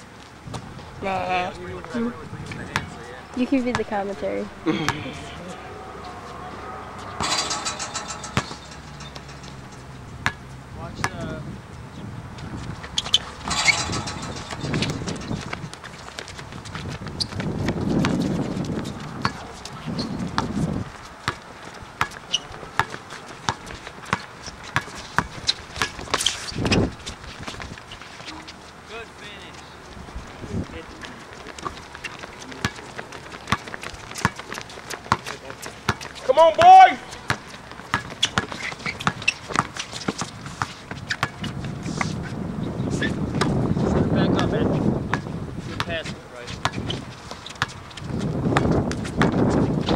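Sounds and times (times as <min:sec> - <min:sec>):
low murmur: 0:00.6 - 0:11.6
footsteps: 0:01.9 - 0:10.4, 0:12.4 - 0:22.3
basketball bouncing on court: 0:02.7 - 0:04.1, 0:10.2 - 0:10.5, 0:13.0 - 0:19.5, 0:21.2 - 0:26.8, 0:31.6 - 0:41.6, 0:46.6 - 0:49.4
sneaker squeaks: 0:04.7 - 0:10.5, 0:12.4 - 0:28.8, 0:31.1 - 0:43.6, 0:46.0 - 0:49.9
players' footfalls: 0:12.4 - 0:28.8, 0:29.4 - 0:42.4, 0:45.1 - 0:49.9.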